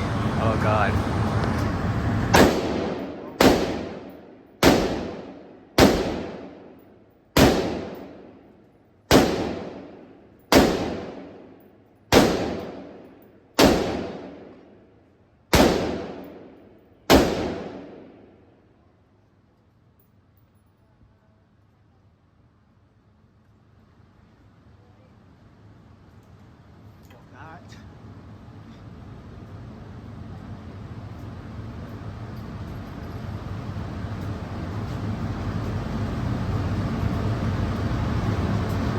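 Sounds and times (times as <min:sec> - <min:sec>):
rifle shots echoing indoors: 0:02.3 - 0:14.7, 0:15.5 - 0:18.4.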